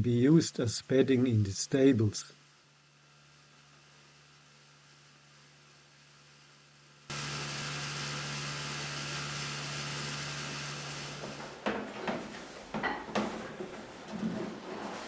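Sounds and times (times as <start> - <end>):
leaf blower engine running: 7.1 - 12.6
knocks and clattering: 11.2 - 15.0.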